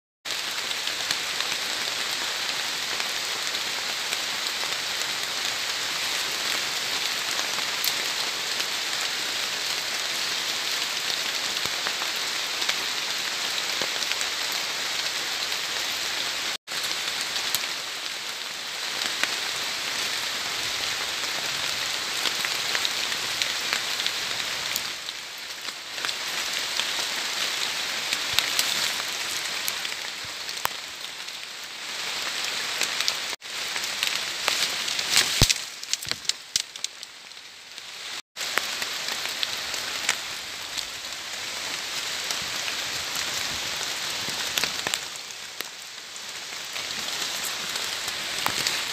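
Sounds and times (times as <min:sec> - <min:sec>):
rain falling on foliage: 0:00.3 - 0:48.9.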